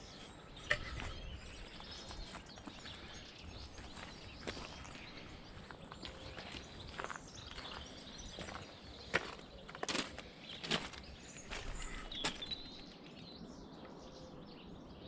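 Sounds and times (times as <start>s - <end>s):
footsteps on outdoor path: 0.0s - 13.0s.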